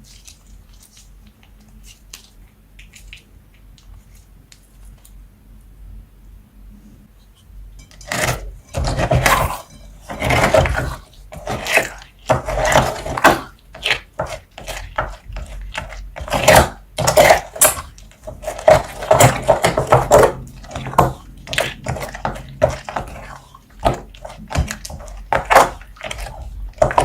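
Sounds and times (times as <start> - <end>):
slime squelching by hand: 8.1 - 27.0.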